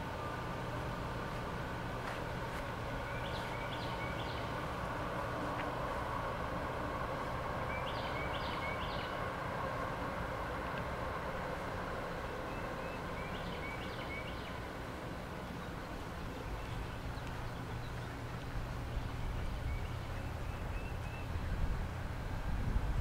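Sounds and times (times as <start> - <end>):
songbirds chirping: 0.0 - 22.9
steady low rumble: 0.0 - 23.0.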